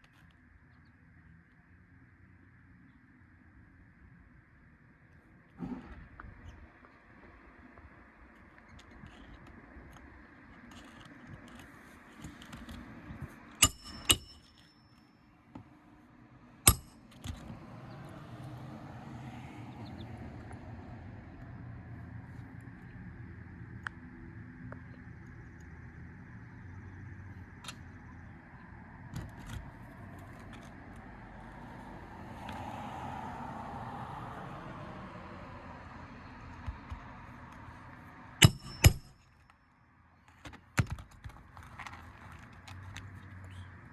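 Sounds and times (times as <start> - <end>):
metallic clinks of roofing tools: 13.5 - 15.2, 16.7 - 17.4, 38.4 - 39.5.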